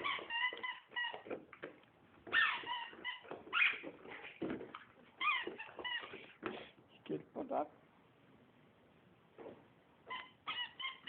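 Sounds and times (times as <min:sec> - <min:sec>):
squeaky rubber toy squeaking: 0:00.0 - 0:01.5, 0:02.2 - 0:04.4, 0:05.2 - 0:06.3, 0:10.0 - 0:11.0.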